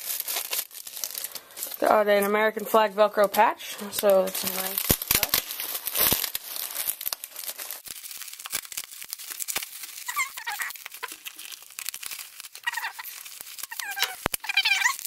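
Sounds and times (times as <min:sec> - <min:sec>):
plastic packaging crinkling: 0:00.0 - 0:15.0
wavering high squeaks: 0:10.1 - 0:10.7, 0:13.7 - 0:15.0.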